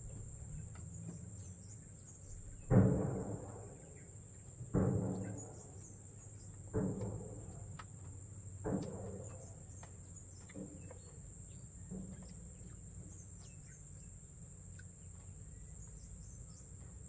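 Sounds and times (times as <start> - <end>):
insects droning: 0.0 - 17.0
soft knocks: 2.2 - 13.6.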